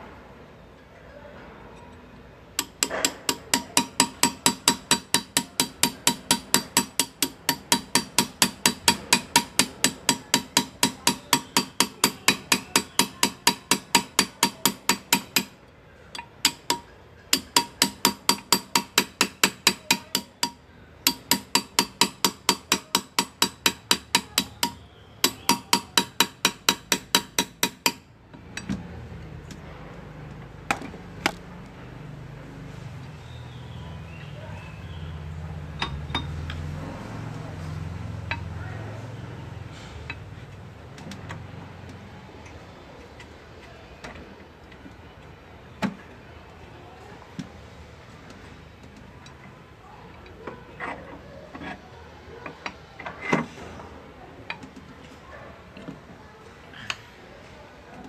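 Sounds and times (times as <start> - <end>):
hammer tapping graver into metal: 2.6 - 28.8.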